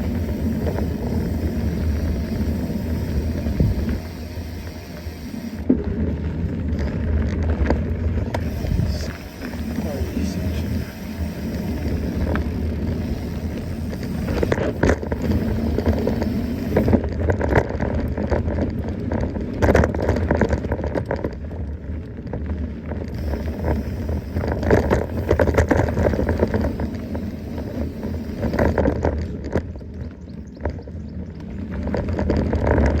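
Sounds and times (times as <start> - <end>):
bike rattling: 0.0 - 33.0
steady low rumble: 0.0 - 33.0
tyres crunching on loose dirt: 0.0 - 33.0.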